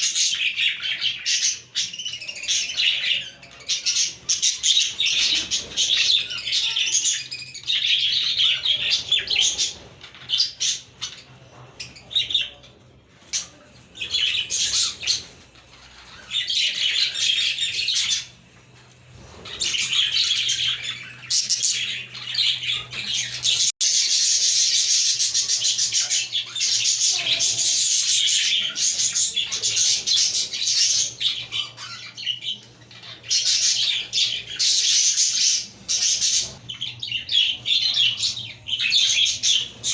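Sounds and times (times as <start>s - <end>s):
budgerigars warbling and chirping: 0.0s - 39.9s.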